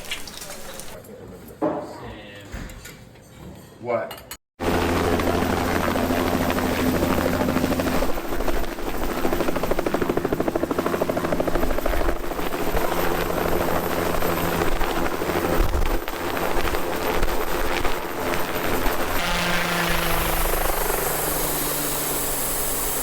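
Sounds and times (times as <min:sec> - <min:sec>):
helicopter rotor and engine: 0:04.6 - 0:23.0.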